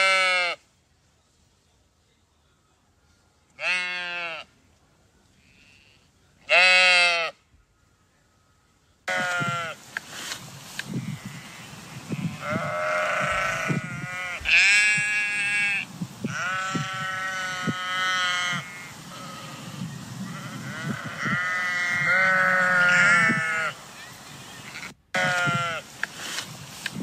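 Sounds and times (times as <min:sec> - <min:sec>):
sheep bleating: 0:00.0 - 0:00.6, 0:03.6 - 0:04.5, 0:05.4 - 0:07.4, 0:09.1 - 0:09.8, 0:11.0 - 0:23.8, 0:25.2 - 0:25.8.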